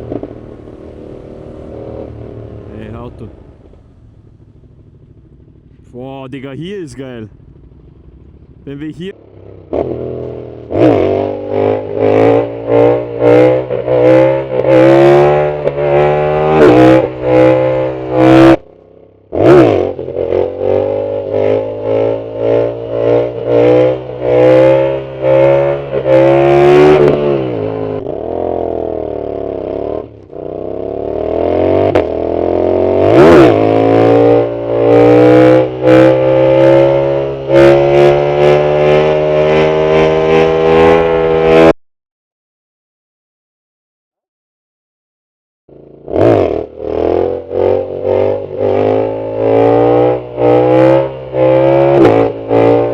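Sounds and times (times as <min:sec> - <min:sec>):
motorcycle engine revving hard: 0:04.0 - 0:18.6, 0:19.3 - 0:41.7, 0:45.7 - 0:52.9.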